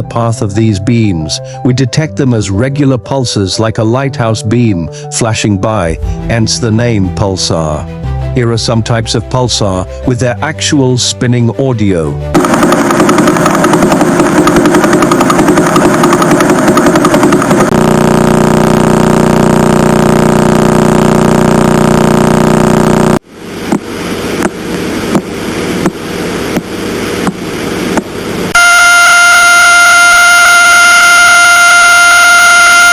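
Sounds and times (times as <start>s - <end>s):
rapid buzz: 12.3s - 32.9s
steady hum: 12.3s - 32.9s
high-pitched tone: 28.5s - 32.9s.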